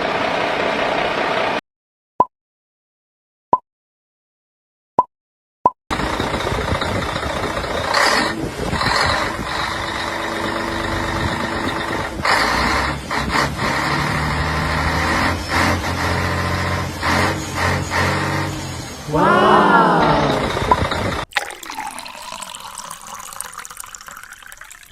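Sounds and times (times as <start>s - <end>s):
truck engine running: 5.9s - 21.3s.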